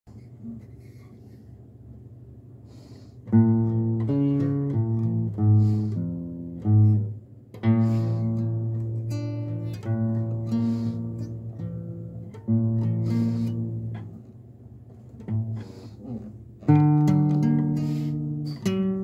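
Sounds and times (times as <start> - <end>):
acoustic guitar strumming: 3.3 - 14.2, 15.1 - 19.0.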